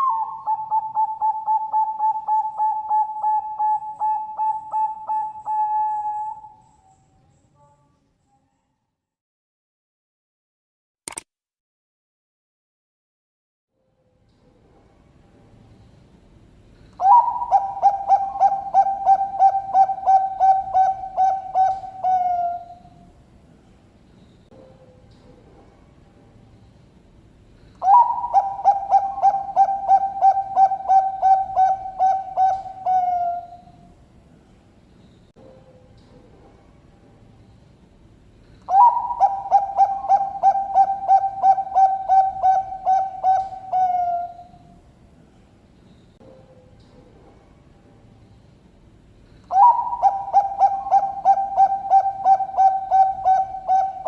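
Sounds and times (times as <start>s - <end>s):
dove cooing: 0.0s - 6.7s, 17.0s - 23.0s, 27.8s - 33.9s, 38.7s - 44.6s, 49.5s - 54.0s.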